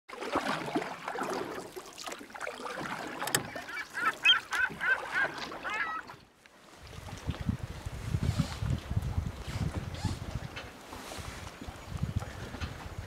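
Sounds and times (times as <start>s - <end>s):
bird calling: 3.3s - 6.2s.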